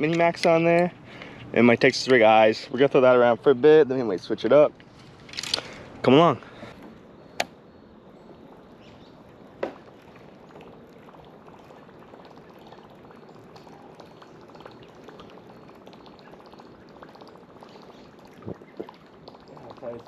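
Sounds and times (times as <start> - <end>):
water trickling and sloshing: 8.1 - 20.0.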